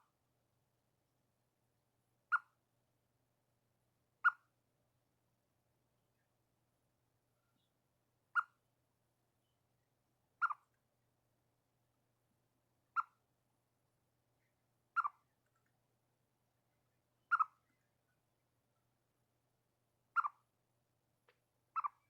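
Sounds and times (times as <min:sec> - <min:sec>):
chipmunk chirping alarm call: 0:04.2 - 0:04.4, 0:08.4 - 0:08.6, 0:10.4 - 0:10.6, 0:12.9 - 0:13.2, 0:14.9 - 0:15.4, 0:17.3 - 0:17.9, 0:20.1 - 0:20.4, 0:21.8 - 0:22.0.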